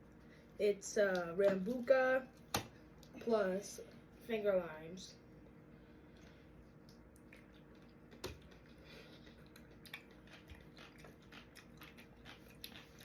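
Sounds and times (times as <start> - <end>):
chewing and wet mouth clicks: 6.8 - 13.0.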